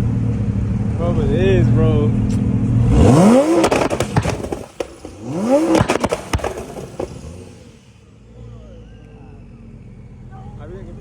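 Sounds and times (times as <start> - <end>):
car engine revving: 0.0 - 11.0
exhaust crackles and pops: 2.1 - 8.0.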